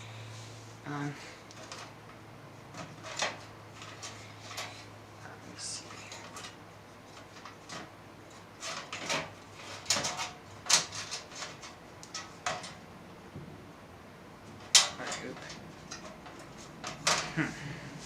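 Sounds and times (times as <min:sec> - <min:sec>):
computer parts clicking and rustling: 0:01.5 - 0:04.9, 0:05.6 - 0:12.9, 0:14.4 - 0:17.5.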